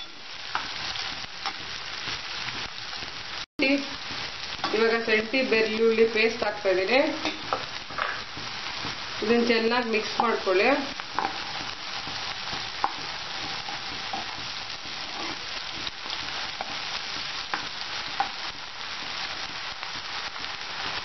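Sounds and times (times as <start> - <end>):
vegetables sizzling in hot oil: 0.0 - 21.0.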